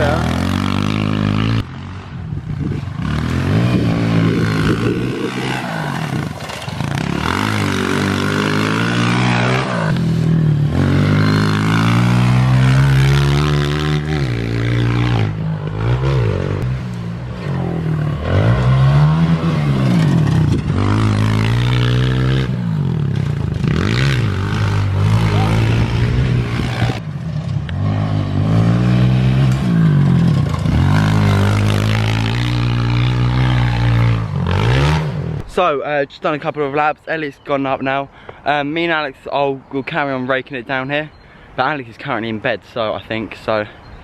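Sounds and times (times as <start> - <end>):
motorbike engines revving: 0.0 - 35.8.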